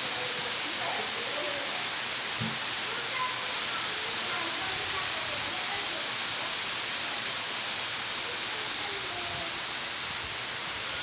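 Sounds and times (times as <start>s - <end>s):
water rushing hiss: 0.0s - 11.0s.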